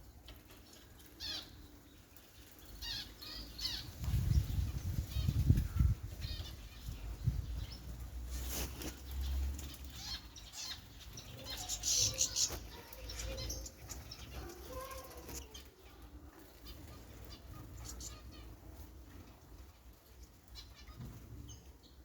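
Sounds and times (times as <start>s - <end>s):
birds fluttering wings in water: 0.0s - 22.0s
high bird chirps: 9.2s - 15.7s.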